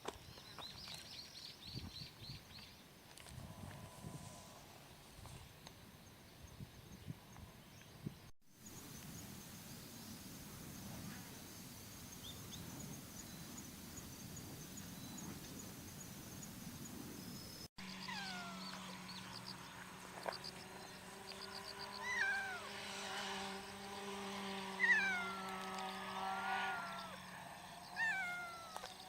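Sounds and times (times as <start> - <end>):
steady low hum: 3.2 - 6.0
insects chirping: 8.6 - 29.0
cat meowing: 18.0 - 18.9, 22.0 - 22.8, 24.8 - 27.2, 28.0 - 29.0.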